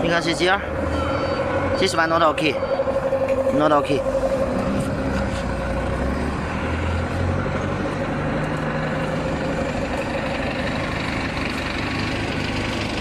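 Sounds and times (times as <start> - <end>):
motor drone with whine: 0.3 - 8.6.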